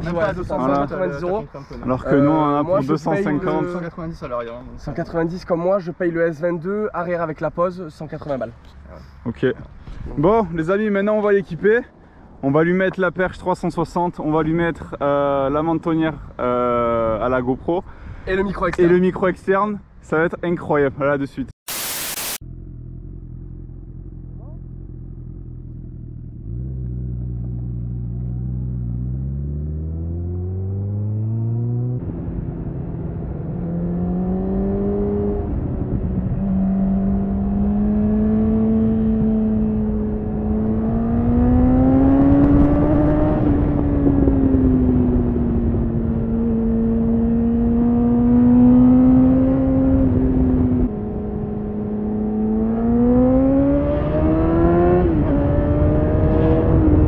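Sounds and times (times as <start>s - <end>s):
motorcycle engine accelerating: 22.2s - 57.0s.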